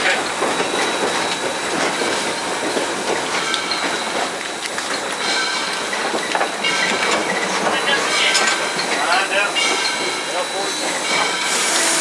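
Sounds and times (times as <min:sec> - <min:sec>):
steam locomotive rumble and hiss: 0:00.0 - 0:12.0
metal clanks: 0:03.0 - 0:11.7.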